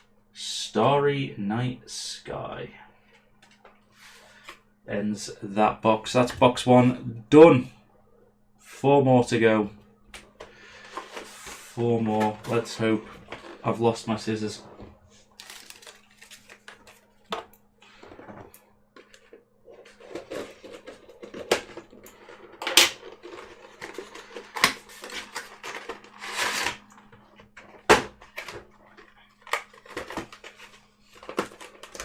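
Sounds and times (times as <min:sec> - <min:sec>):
faint low hum: 0:00.0 - 0:32.0
cardboard and wrapper rustling: 0:10.6 - 0:32.0.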